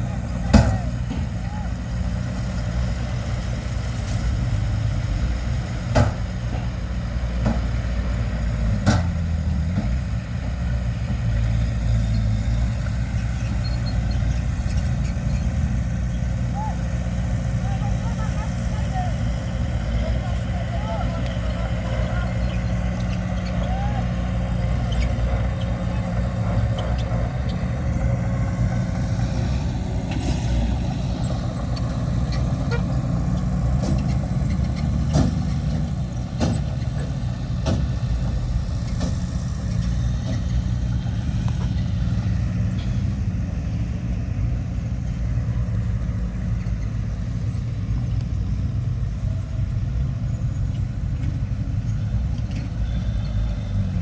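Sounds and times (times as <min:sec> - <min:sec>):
diesel machinery running: 0:00.0 - 0:54.0.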